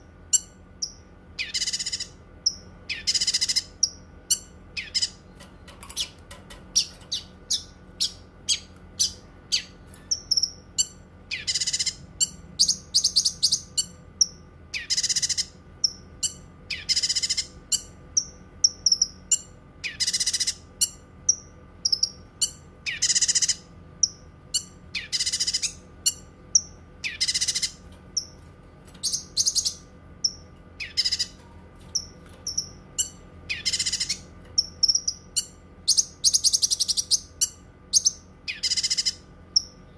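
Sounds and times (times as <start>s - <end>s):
songbird chirping and rasping: 0.0s - 39.9s.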